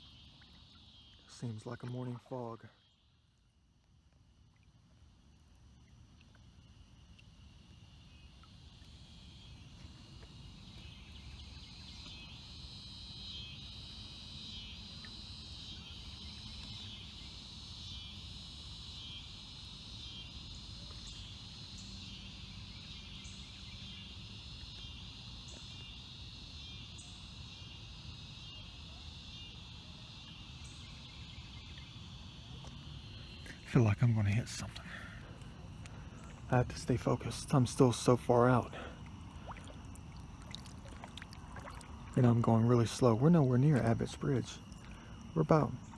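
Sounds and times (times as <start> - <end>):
crickets and insects trilling: 0.0 - 45.9
steady low rumble: 33.2 - 45.9.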